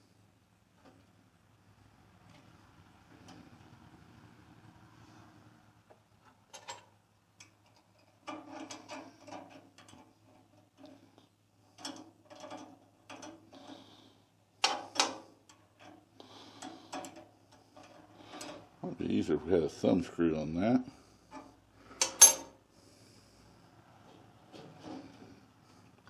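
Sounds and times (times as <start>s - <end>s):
metallic clicks and clatter: 6.2s - 11.0s, 11.7s - 13.5s.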